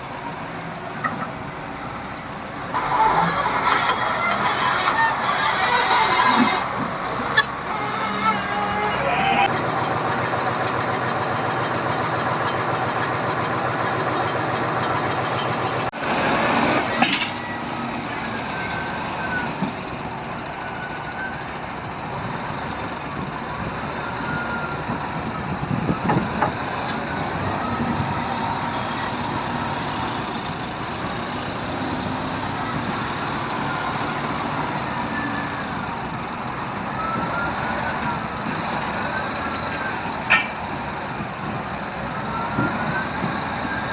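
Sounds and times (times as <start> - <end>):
diesel truck engine running: 0.0 - 43.9
short high squeaks: 2.8 - 9.5.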